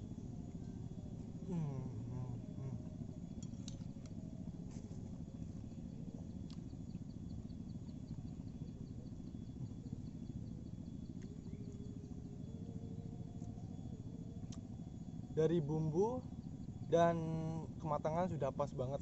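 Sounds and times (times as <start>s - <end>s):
breeze rumble: 0.0s - 19.0s.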